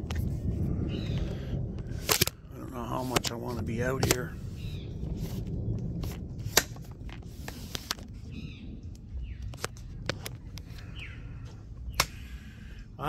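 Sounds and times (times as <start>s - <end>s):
low steady rumble: 0.0s - 13.0s
birds chirping: 0.8s - 1.7s, 2.4s - 6.0s, 8.1s - 13.0s
sharp clicks: 2.0s - 2.4s.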